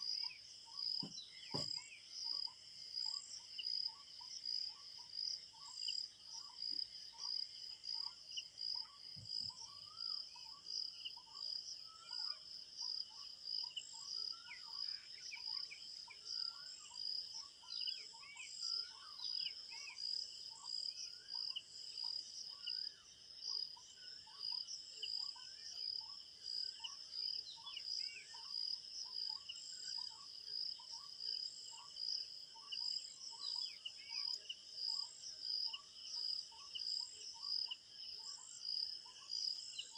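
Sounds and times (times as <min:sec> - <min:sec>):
crickets chirping: 0:00.0 - 0:39.9
bird calls: 0:00.2 - 0:02.5.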